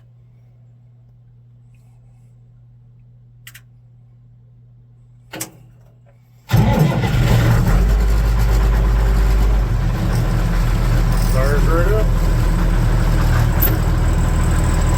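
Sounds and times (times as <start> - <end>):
diesel engine starting and running: 6.5 - 14.9.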